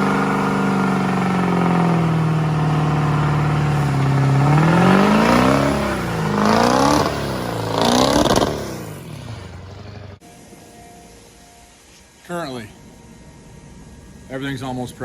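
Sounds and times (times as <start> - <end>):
vehicle engine revving: 0.0 - 10.2.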